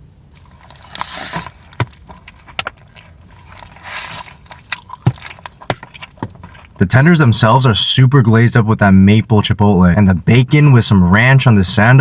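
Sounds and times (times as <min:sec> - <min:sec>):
person biting sandwich: 0:00.3 - 0:06.8
wet chewing: 0:00.3 - 0:06.9.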